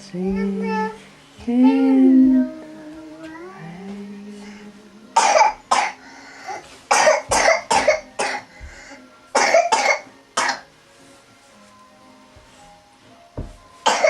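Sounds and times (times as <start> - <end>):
person coughing: 5.2 - 6.0, 6.9 - 8.5, 9.4 - 10.7.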